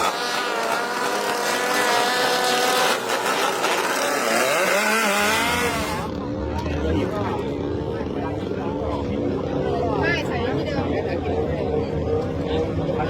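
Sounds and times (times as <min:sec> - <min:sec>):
engine revving high: 0:00.0 - 0:07.1.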